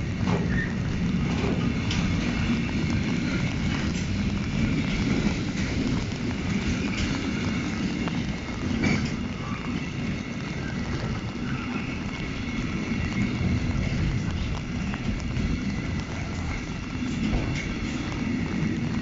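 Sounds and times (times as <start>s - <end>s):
rail clacks: 0.0s - 19.0s
train wheels rumbling on rail: 0.0s - 19.0s.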